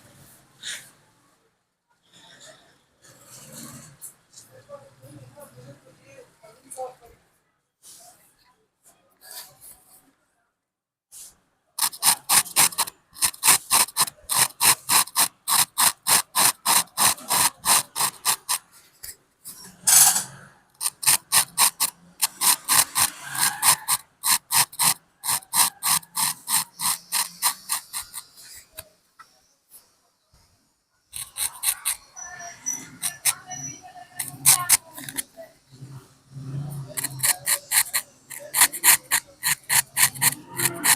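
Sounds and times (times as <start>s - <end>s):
razor blade scraping hair: 11.8s - 18.6s, 20.8s - 28.8s, 31.2s - 33.6s, 34.2s - 35.2s, 36.9s - 40.9s.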